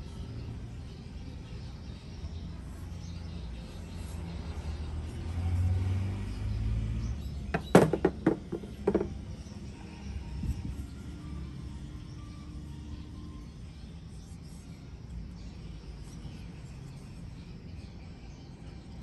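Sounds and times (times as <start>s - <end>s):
sharp knocks: 7.6s - 9.2s.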